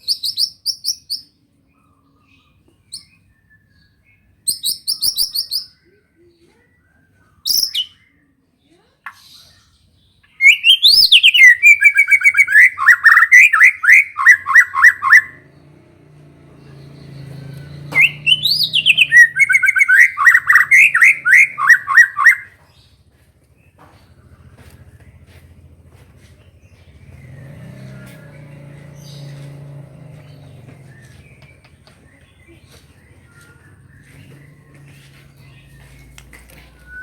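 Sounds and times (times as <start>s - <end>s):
bird singing whistled phrases: 7.1s - 8.1s, 10.3s - 15.4s, 17.3s - 22.6s, 36.6s - 37.0s.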